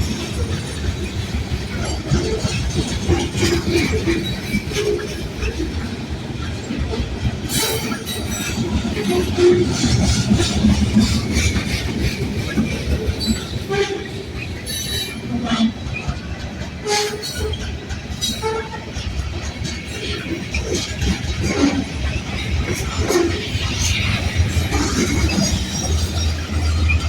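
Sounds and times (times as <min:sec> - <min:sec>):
freight train rumbling: 0:00.0 - 0:27.0
wheels clacking over rail joints: 0:00.0 - 0:27.0.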